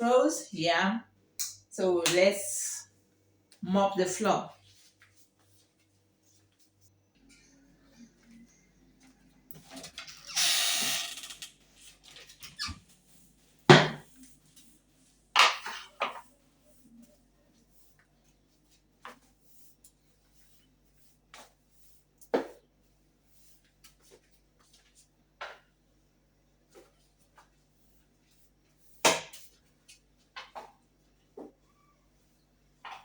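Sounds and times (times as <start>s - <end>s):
mop and bucket knocking: 13.7s - 14.1s.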